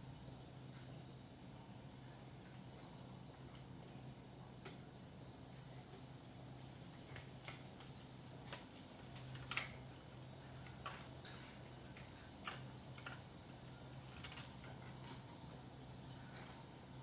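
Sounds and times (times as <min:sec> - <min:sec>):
faint clicks and taps: 0:07.1 - 0:09.9.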